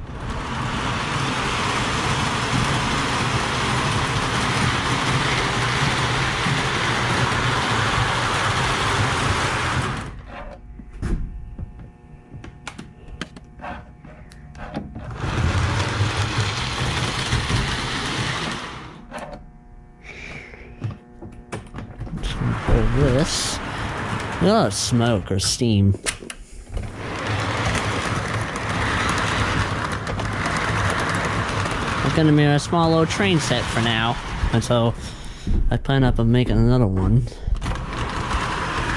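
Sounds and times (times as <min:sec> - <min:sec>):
model train running on track: 0:00.0 - 0:10.2, 0:15.2 - 0:19.0, 0:22.2 - 0:25.7, 0:26.9 - 0:35.2, 0:37.6 - 0:38.9
model train clicks: 0:01.5 - 0:09.8, 0:27.0 - 0:34.8, 0:37.6 - 0:38.9.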